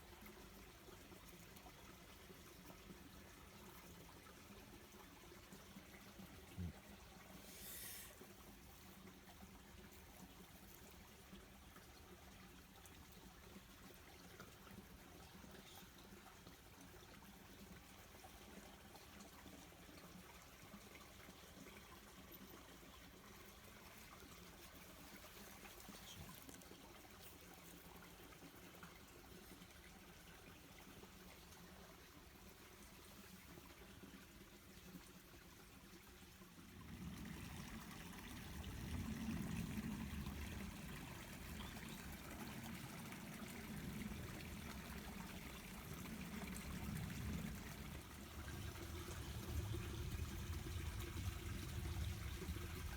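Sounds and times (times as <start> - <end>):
faint background hiss: 0.0 - 17.2.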